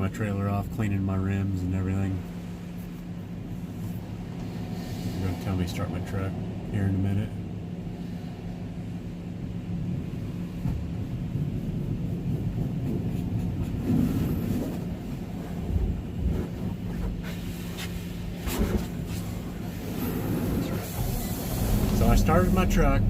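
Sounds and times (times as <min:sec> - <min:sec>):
heater fan running: 0:00.0 - 0:23.0
truck cab hum and rumble: 0:00.0 - 0:23.0
low thumps: 0:20.6 - 0:23.0.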